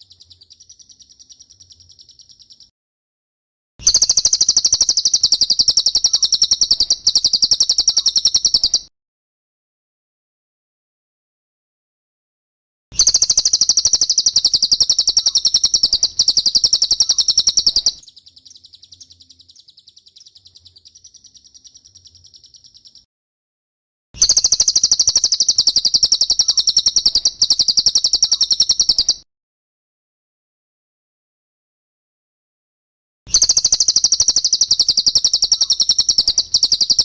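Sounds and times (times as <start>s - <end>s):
bird trilling: 3.8s - 8.9s, 13.0s - 23.1s, 24.2s - 29.2s, 33.3s - 37.0s.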